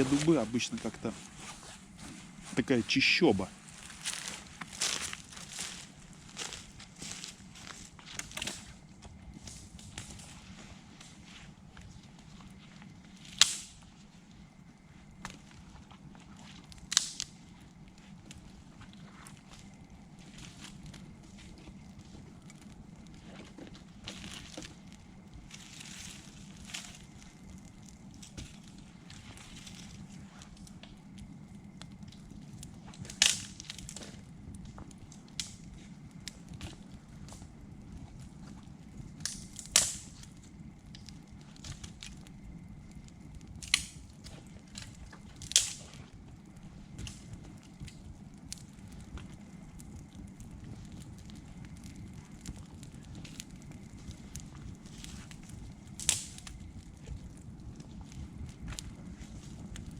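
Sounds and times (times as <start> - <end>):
campfire crackling: 0.0 - 59.9
sharp loud crack of fire: 0.0 - 59.9
wood popping: 0.0 - 59.9.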